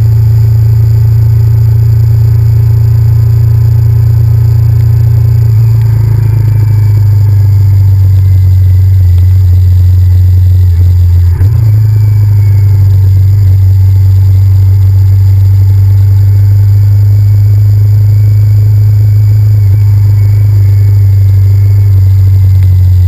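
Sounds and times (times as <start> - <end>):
motorcycle engine droning: 0.0 - 23.0.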